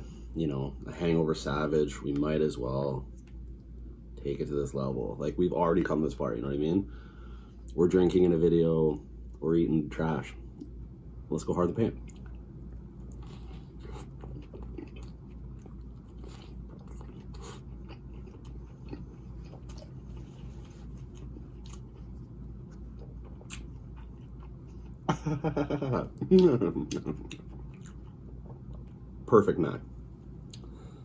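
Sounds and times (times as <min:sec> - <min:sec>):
steady low hum: 0:00.0 - 0:31.0
wet chewing with crunches: 0:12.0 - 0:25.0, 0:26.4 - 0:29.0.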